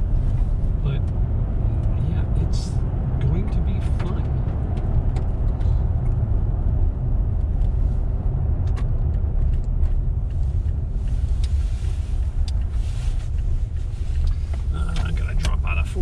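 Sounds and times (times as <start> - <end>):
engine and tyre rumble: 0.0 - 16.0
faint clicks: 8.6 - 15.6.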